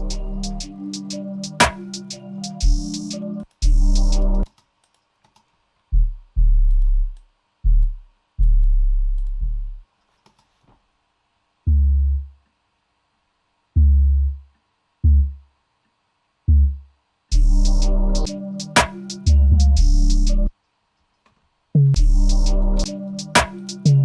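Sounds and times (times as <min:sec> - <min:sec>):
deep bass notes: 0:00.0 - 0:00.8, 0:03.6 - 0:04.4, 0:05.9 - 0:09.8, 0:11.7 - 0:12.4, 0:13.8 - 0:14.4, 0:15.0 - 0:15.4, 0:16.5 - 0:18.3, 0:19.3 - 0:20.5, 0:21.8 - 0:23.0.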